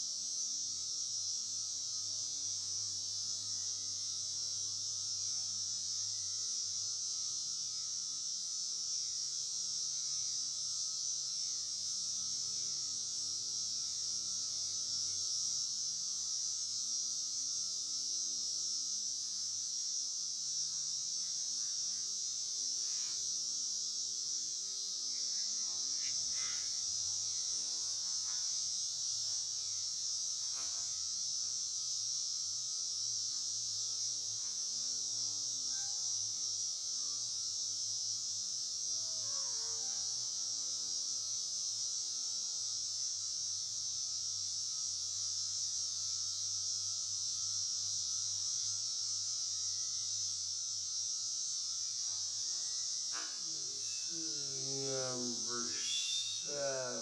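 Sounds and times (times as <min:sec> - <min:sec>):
steady high-pitched hiss: 0:00.0 - 0:57.0
faint short chirps: 0:55.8 - 0:56.5.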